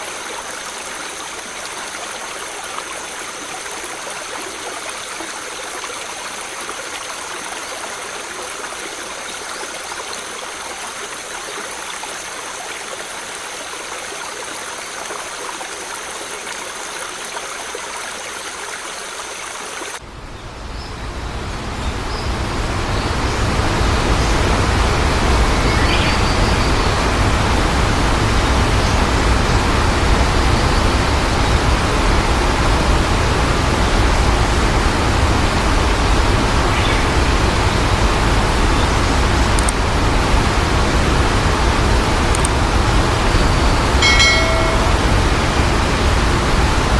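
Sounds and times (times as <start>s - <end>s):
waterfall rushing: 37.4s - 46.9s.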